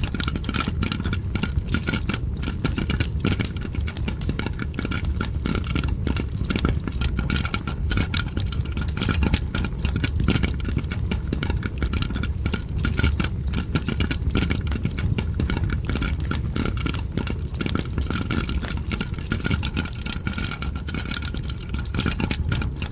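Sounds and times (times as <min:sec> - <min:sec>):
popcorn popping: 0:00.0 - 0:22.9
wood fire crackling: 0:00.0 - 0:22.9.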